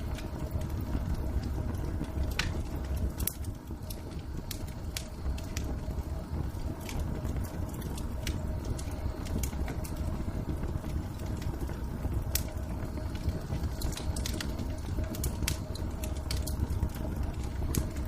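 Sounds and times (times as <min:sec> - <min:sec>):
faint hum: 0:00.0 - 0:18.0
wood fire crackling: 0:00.0 - 0:18.0.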